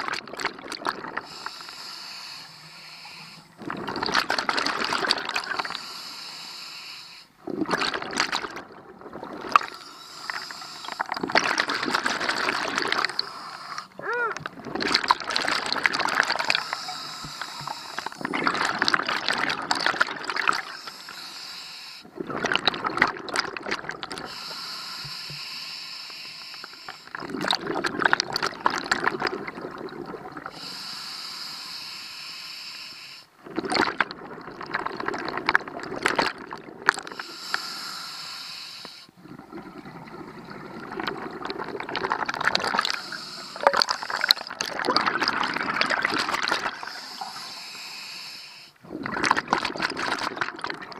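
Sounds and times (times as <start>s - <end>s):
exhaled bubbles bursting: 0.0s - 1.4s, 3.6s - 5.8s, 7.4s - 20.8s, 22.1s - 24.4s, 27.1s - 30.5s, 33.4s - 37.2s, 39.2s - 47.4s, 48.8s - 50.9s.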